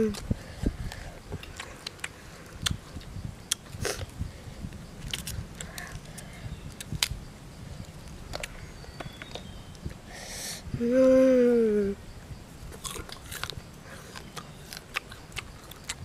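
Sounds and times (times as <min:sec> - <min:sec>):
guava being chewed: 0:00.0 - 0:07.2, 0:07.8 - 0:10.0, 0:12.7 - 0:16.0.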